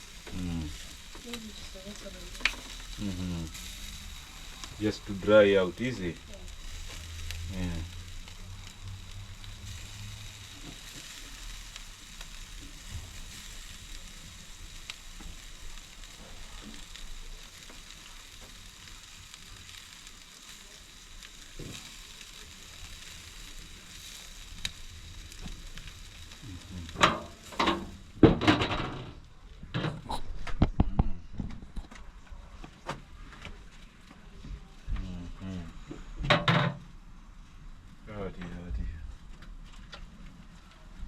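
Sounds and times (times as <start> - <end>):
chicken sizzling on a barbecue: 0.0 - 31.0, 33.1 - 41.0
loud knocks and clatters: 27.0 - 29.2.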